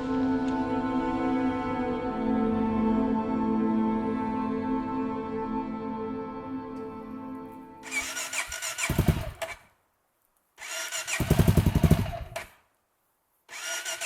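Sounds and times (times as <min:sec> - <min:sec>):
motorcycle starter whine: 0:07.8 - 0:09.6, 0:10.6 - 0:12.6, 0:13.5 - 0:14.0
engine turning over without catching: 0:07.8 - 0:09.7, 0:10.6 - 0:12.6, 0:13.5 - 0:14.0.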